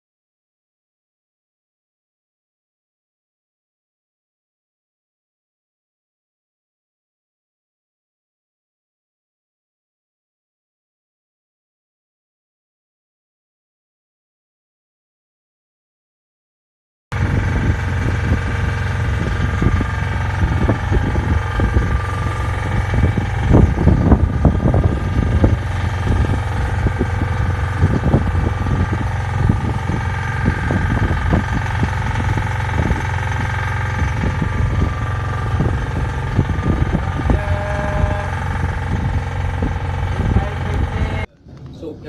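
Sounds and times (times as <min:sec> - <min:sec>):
boat engine running: 0:17.1 - 0:42.0.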